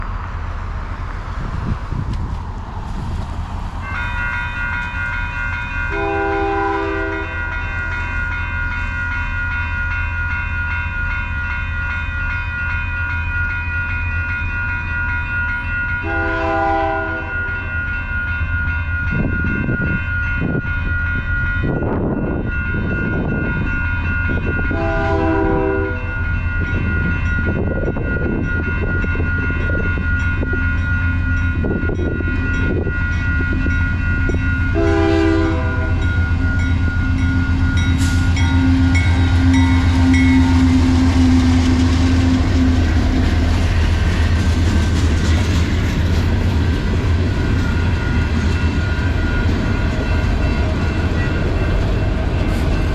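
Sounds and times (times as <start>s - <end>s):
diesel locomotive engine rumble: 0.0s - 52.9s
crossing bell ringing: 3.8s - 52.9s
train horn blasts: 5.9s - 7.6s, 16.0s - 17.6s, 24.7s - 26.2s, 34.6s - 43.2s
freight cars rattling on rails: 25.5s - 52.9s.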